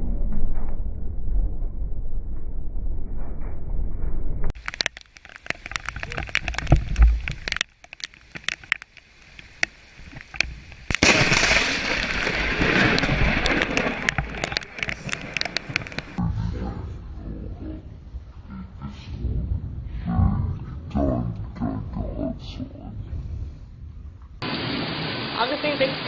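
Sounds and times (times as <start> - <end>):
sharp crackling snaps: 4.5 - 16.2
steady rushing hiss: 4.6 - 16.2
low thunder rumble: 11.0 - 24.4.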